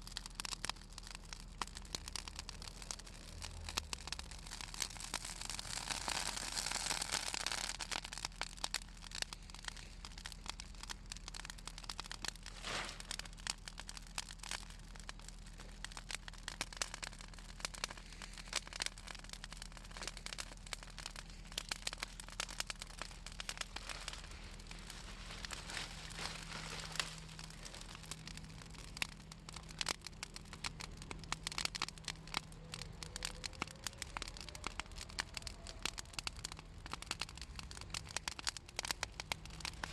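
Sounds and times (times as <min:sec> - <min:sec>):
bonfire crackling and popping: 0:00.0 - 0:39.9
fire hissing: 0:00.0 - 0:39.9.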